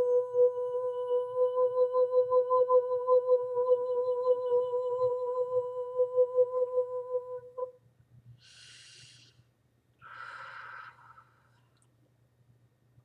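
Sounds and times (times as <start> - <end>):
woman singing steady note: 0.0 - 7.8
breaths: 8.4 - 11.8.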